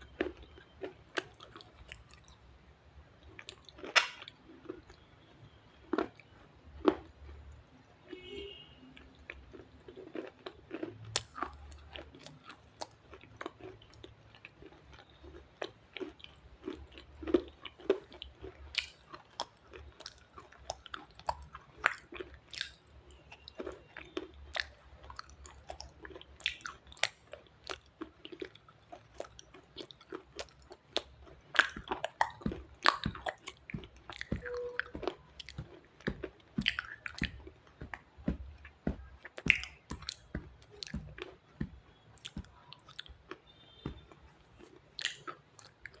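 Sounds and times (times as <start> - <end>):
crunching and chewing stone: 0.0 - 2.4, 3.2 - 5.0, 5.8 - 7.5, 9.0 - 46.0.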